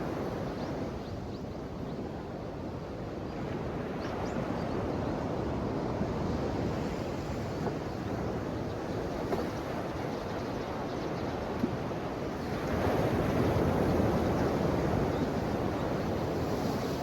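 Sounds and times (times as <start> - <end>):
ocean waves washing ashore: 12.4 - 17.0.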